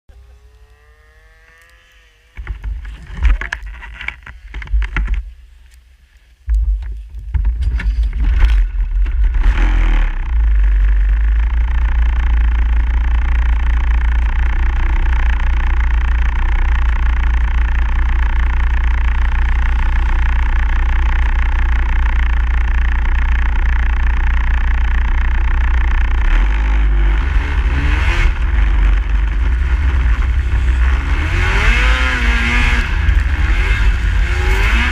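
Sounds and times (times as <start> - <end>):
snowmobile engine running: 0.1 - 5.3, 6.6 - 34.9
knocks and bumps: 2.4 - 5.4, 6.4 - 9.6.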